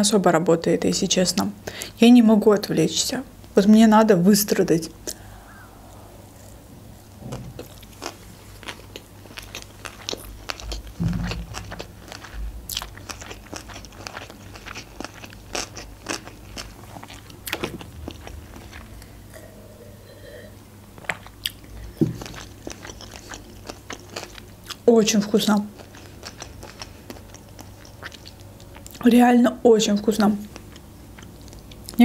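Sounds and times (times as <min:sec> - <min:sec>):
soft thumps: 0:07.1 - 0:07.8, 0:10.9 - 0:11.8
wet chewing and crunching: 0:07.2 - 0:19.2, 0:21.0 - 0:29.1, 0:30.4 - 0:32.0.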